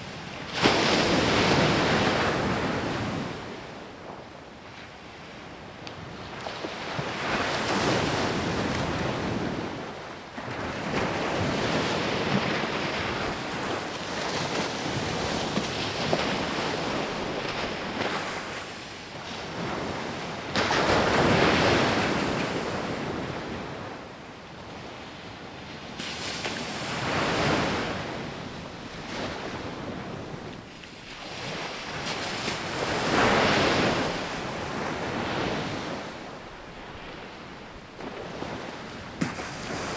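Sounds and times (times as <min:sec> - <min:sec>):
waves breaking on sandy beach: 0:24.8 - 0:39.9.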